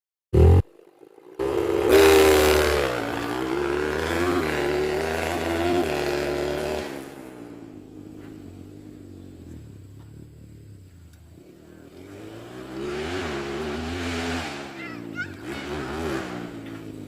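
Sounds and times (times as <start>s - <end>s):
motorcycle engine revving: 0.3s - 17.0s.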